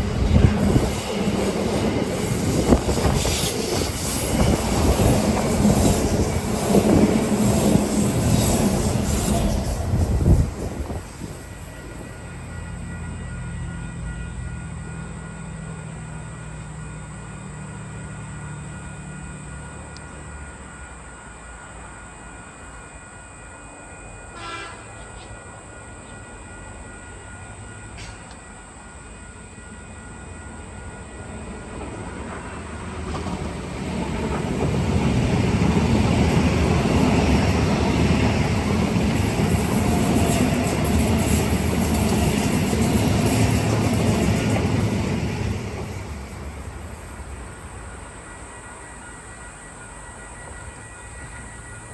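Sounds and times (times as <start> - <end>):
train engine hum: 0.0 - 51.9
train passing on rails: 0.0 - 51.9
train horn: 24.2 - 25.5.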